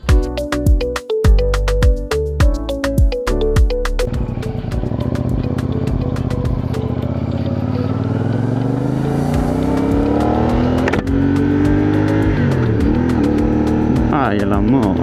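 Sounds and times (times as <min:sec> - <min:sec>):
motorcycle engine accelerating: 0:04.0 - 0:15.0.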